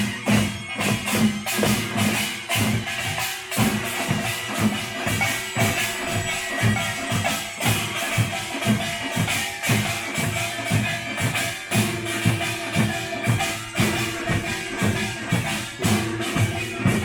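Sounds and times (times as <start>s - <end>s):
jangling metallic gong clatter: 0.0s - 17.0s
deep drum strokes: 11.9s - 17.0s.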